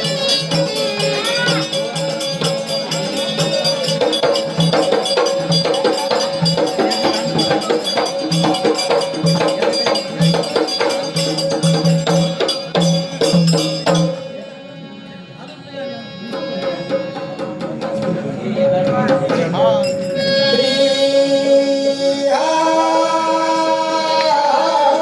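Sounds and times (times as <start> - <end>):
quick hand percussion jingling: 0.0 - 14.3, 16.8 - 21.0.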